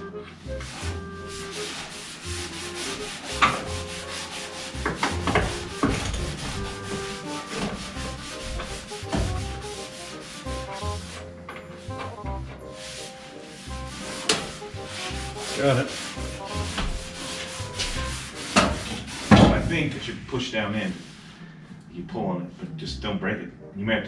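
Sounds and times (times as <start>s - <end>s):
sanding metal car body: 0.6s - 12.0s, 12.6s - 19.6s.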